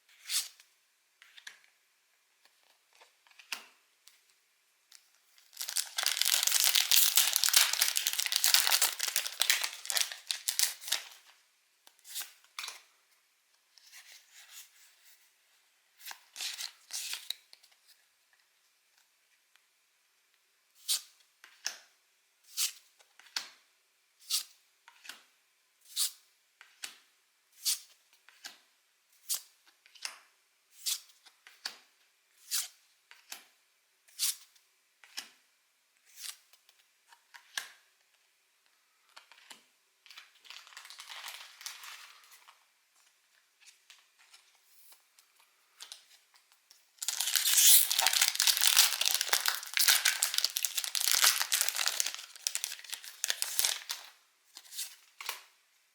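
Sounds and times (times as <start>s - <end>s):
foil wrapper crinkling: 5.4s - 11.2s, 40.4s - 42.5s, 47.0s - 54.2s.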